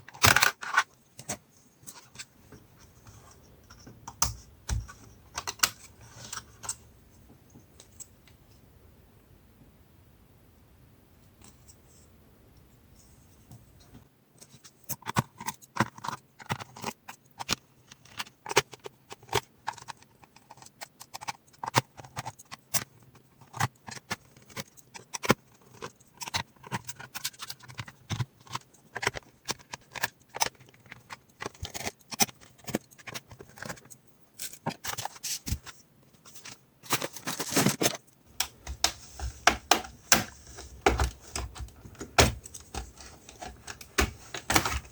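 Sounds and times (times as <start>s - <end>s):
plastic parts clicking and snapping: 0.0s - 2.3s, 3.7s - 6.8s, 14.9s - 44.9s.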